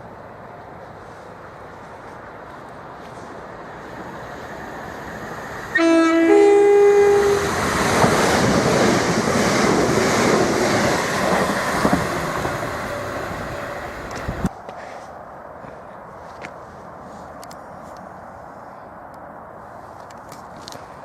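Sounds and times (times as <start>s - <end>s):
train wheels on rails: 0.7s - 14.9s
two-note train horn: 5.7s - 7.6s.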